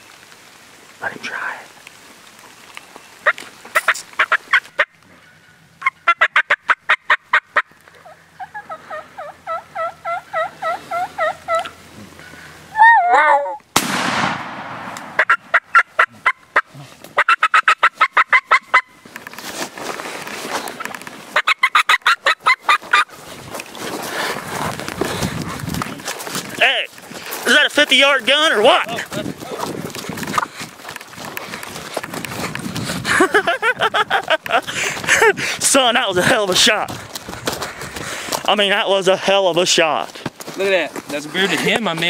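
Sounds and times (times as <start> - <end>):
turkeys yelping: 3.2 - 13.6, 14.9 - 19.1, 20.5 - 23.7
shotgun blast: 13.8 - 15.2.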